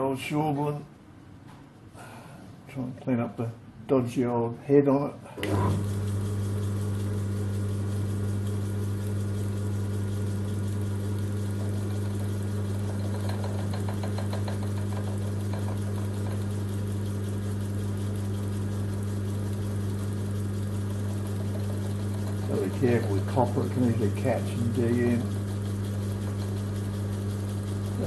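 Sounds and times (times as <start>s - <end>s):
lathe motor hum: 5.4s - 28.0s
tool cutting metal ticking: 11.5s - 16.6s, 20.9s - 28.0s.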